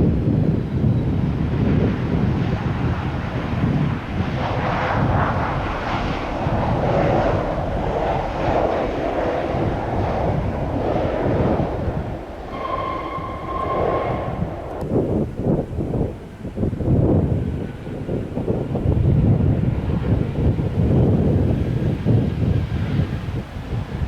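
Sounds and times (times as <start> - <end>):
jet engine roar: 0.0 - 24.0
wind buffeting microphone: 0.0 - 24.0
steady high whine: 4.8 - 16.4.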